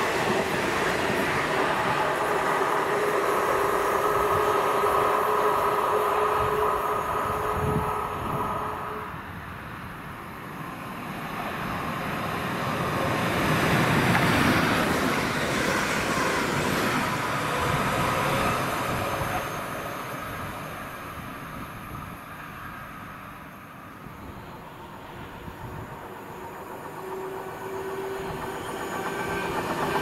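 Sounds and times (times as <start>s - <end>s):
train passing: 0.0s - 30.0s.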